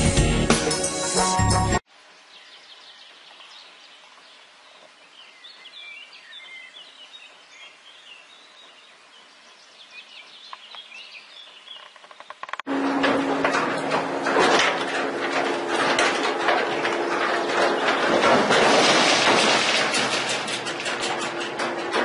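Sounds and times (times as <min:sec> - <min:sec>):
small birds chirping: 0:02.1 - 0:12.6.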